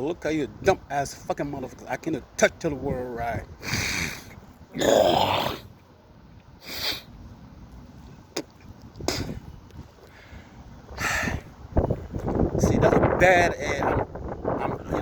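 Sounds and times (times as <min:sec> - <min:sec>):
man breathing: 0:10.0 - 0:11.5.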